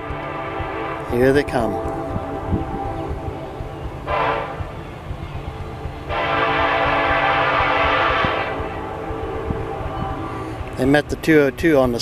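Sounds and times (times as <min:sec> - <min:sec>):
locomotive air horn blasts: 0:00.0 - 0:04.8, 0:06.1 - 0:10.7
train rumbling: 0:00.0 - 0:12.0.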